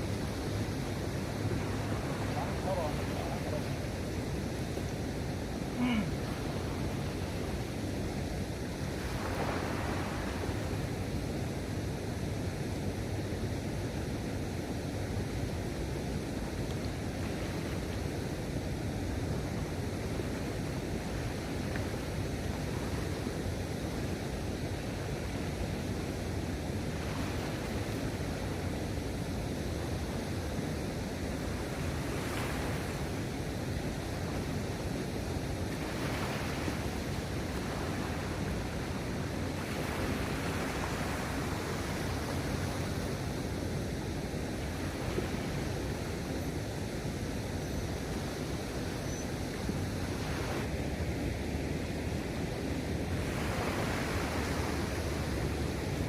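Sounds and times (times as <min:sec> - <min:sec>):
sea water washing: 0:00.0 - 0:11.2, 0:16.1 - 0:47.4, 0:48.0 - 0:56.0
wind noise on microphone: 0:00.0 - 0:56.0.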